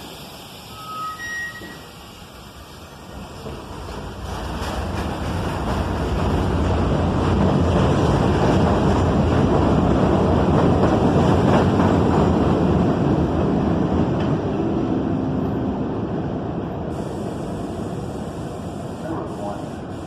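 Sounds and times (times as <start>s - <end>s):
subway train rumbling past: 0.0s - 20.0s.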